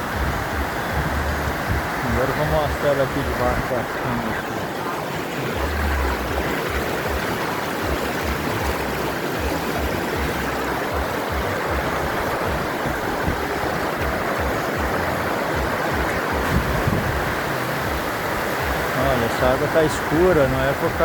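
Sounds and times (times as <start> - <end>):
low thumps on microphone: 0.0 - 2.0, 7.9 - 18.9
waterfall rushing: 0.0 - 21.0.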